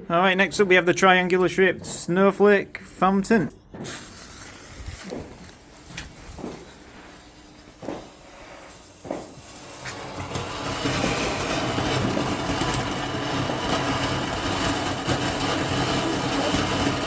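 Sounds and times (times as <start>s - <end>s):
firework fountain hissing: 3.7s - 17.0s.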